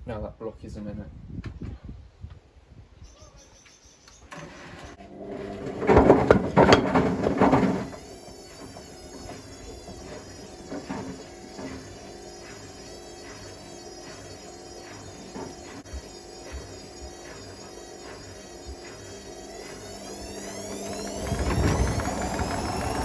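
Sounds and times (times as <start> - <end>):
washing machine humming: 4.4 - 23.0
bricks clattering in washing machine drum: 5.0 - 12.0
faint wavering whine: 5.3 - 23.0.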